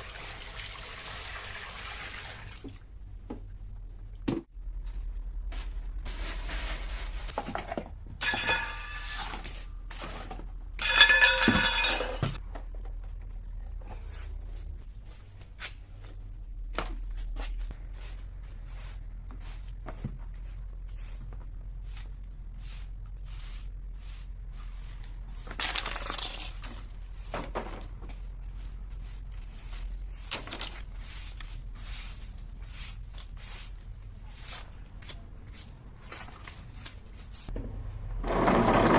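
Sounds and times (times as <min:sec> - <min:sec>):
objects knocking and clinking: 0:08.2 - 0:09.5, 0:10.3 - 0:12.4.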